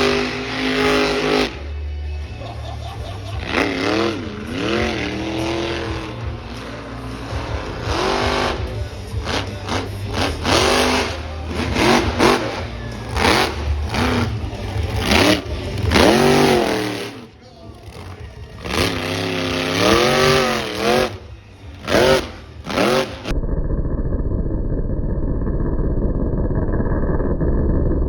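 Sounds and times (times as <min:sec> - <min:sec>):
engines revving in blips: 0:00.0 - 0:02.4, 0:03.2 - 0:23.3
low engine drone: 0:00.0 - 0:28.0.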